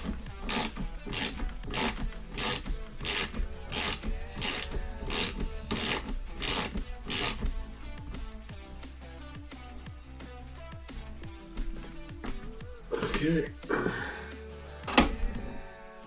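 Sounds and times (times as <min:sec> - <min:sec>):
rasping strokes on metal: 0:00.0 - 0:08.5.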